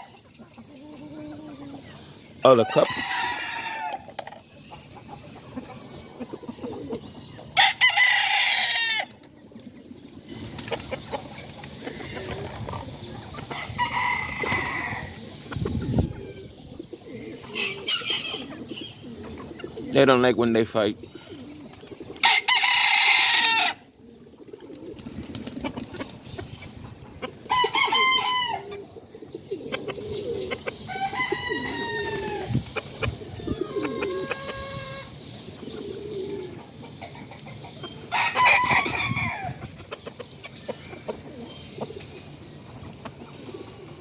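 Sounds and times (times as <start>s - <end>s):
chickens calling: 0.0s - 44.0s.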